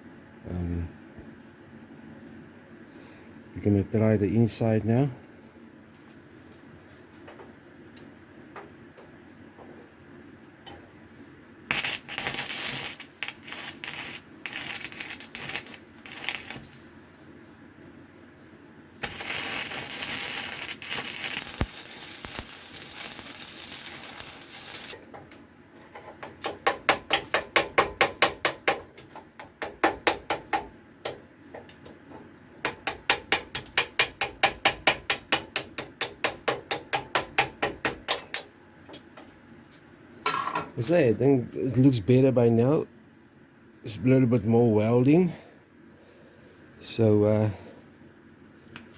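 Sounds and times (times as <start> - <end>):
welding arc crackling: 11.7 - 17.2, 19.0 - 25.0.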